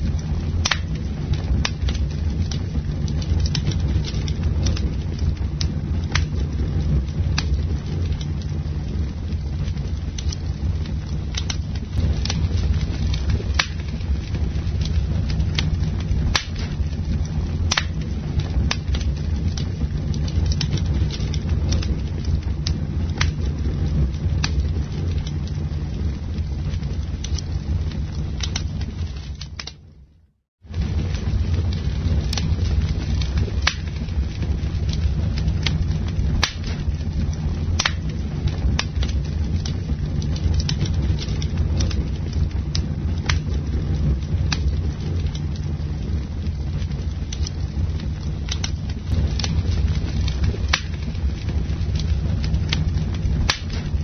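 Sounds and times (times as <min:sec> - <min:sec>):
campfire flame rumbling: 0:00.0 - 0:54.0
wood crackling and popping: 0:00.0 - 0:54.0.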